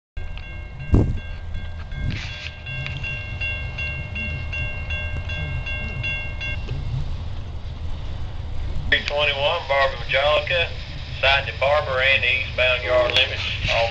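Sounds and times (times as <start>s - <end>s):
bell ringing: 0.2s - 6.7s
train rumbling past: 0.2s - 13.9s.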